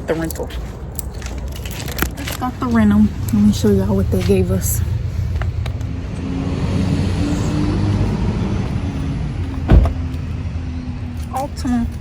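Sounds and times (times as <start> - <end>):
car engine running: 3.2 - 10.4
loud thump: 9.6 - 10.1.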